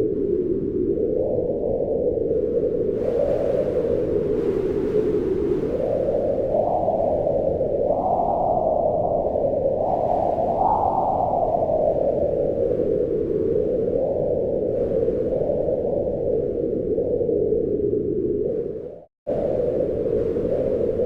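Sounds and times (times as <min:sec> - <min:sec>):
wind blowing in gusts: 0:00.0 - 0:21.0.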